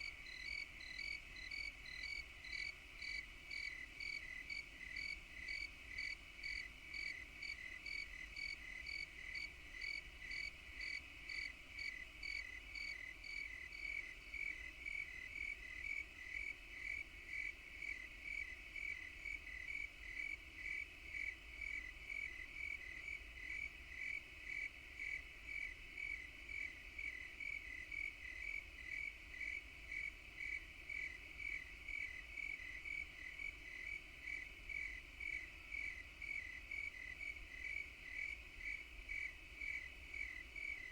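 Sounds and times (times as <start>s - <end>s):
insect chirping: 0.2s - 15.8s.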